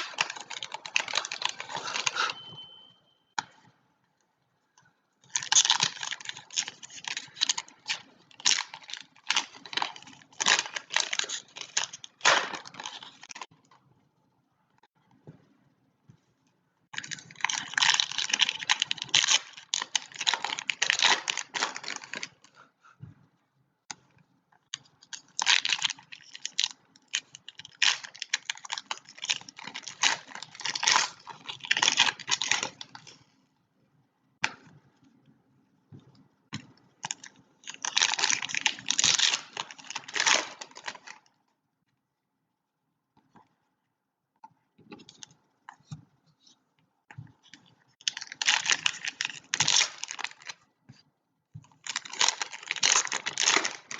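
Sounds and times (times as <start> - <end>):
foil wrappers crinkling: 0.0 - 2.5, 5.2 - 13.5, 17.0 - 22.5, 24.7 - 33.2, 37.0 - 41.3, 47.4 - 50.6, 51.7 - 53.9.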